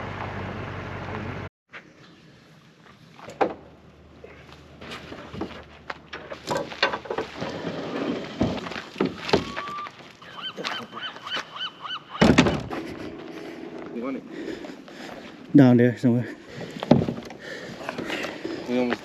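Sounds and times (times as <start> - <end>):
bird calling: 9.3 - 15.5.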